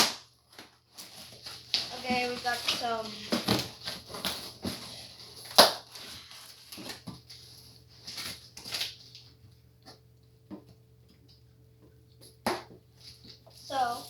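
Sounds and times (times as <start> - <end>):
packaging crinkling and rustling: 0.0 - 9.6, 13.0 - 14.0.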